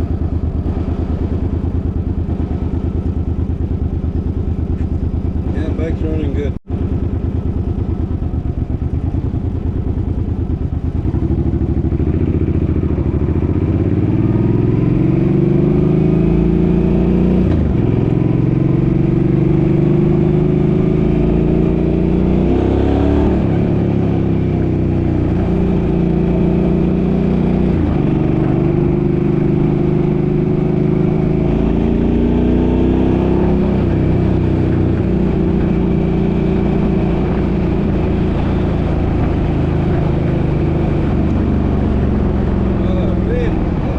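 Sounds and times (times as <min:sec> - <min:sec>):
car engine accelerating: 0:10.8 - 0:43.9.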